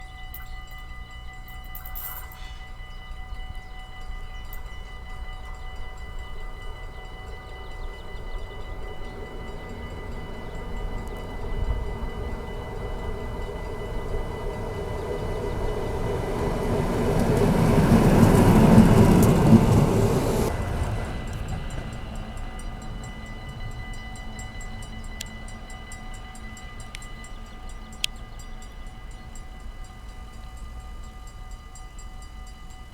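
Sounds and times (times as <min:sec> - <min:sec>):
diesel locomotives passing: 0:00.0 - 0:32.9.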